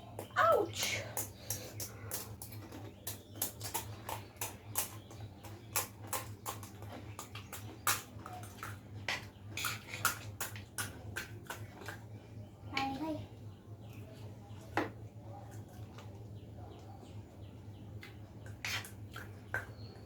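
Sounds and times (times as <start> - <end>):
wet chewing and crunching: 1.2 - 12.3.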